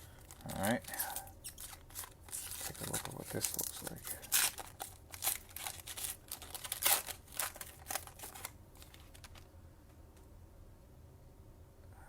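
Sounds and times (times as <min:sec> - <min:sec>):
cards clicking and rustling: 0:00.1 - 0:09.5.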